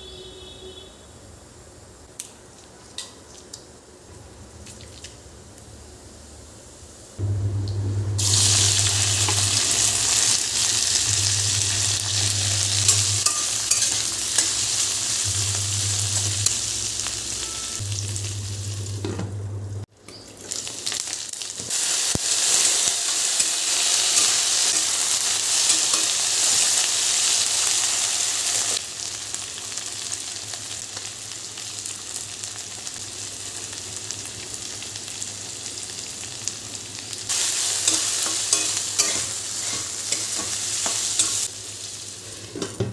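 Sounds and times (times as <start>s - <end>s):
food sizzling in hot oil: 8.1s - 19.1s, 20.1s - 42.6s.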